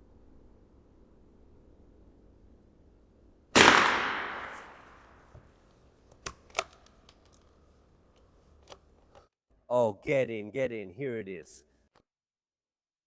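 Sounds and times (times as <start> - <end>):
rifle shot echoing: 3.5 - 5.2.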